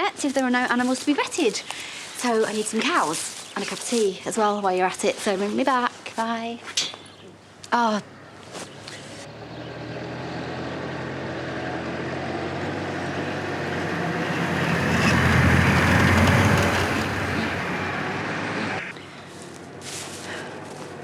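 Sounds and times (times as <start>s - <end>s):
tractor engine running: 11.8s - 18.2s.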